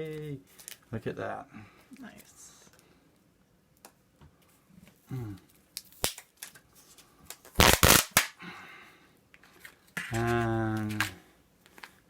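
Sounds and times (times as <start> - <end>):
person murmuring: 5.1 - 5.5.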